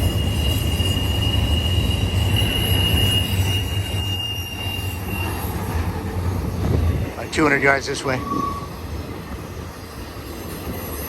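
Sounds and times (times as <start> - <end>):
high wheel squeal: 0.0 - 6.0, 7.6 - 8.9
train wheels rumbling on rail: 0.0 - 11.0.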